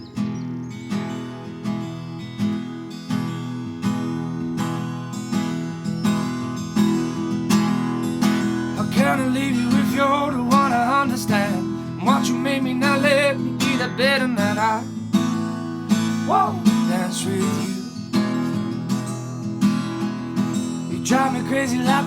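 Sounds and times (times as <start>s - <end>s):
acoustic guitar strumming: 0.0s - 22.0s
person singing: 8.8s - 14.9s, 16.3s - 17.9s, 20.9s - 22.0s.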